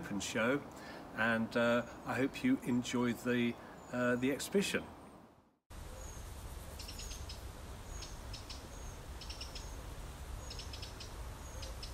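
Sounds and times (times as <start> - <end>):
small birds chirping: 5.8 - 11.9.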